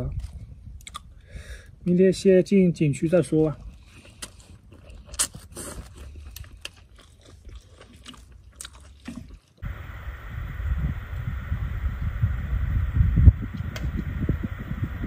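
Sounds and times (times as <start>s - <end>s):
wet mouth clicks: 0.8s - 1.1s
person chewing noodles: 3.6s - 9.6s
low rumbling noise: 9.6s - 15.0s.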